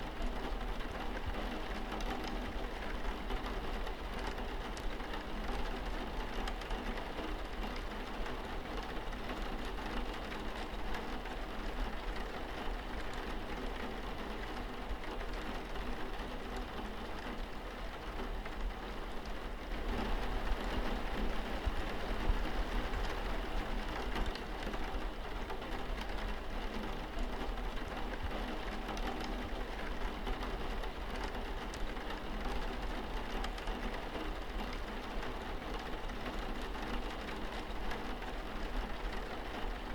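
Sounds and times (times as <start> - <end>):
rain pattering on a window: 0.0 - 39.9.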